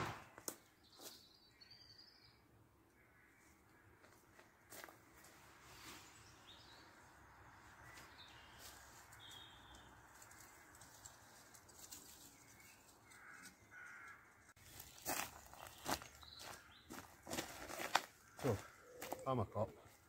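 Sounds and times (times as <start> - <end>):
faint bird chirps: 7.6 - 10.0.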